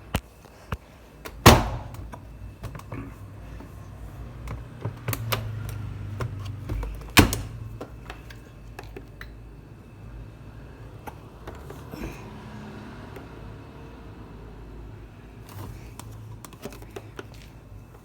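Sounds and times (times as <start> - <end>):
washing machine humming: 0.0 - 18.0
loud thuds: 1.4 - 2.3.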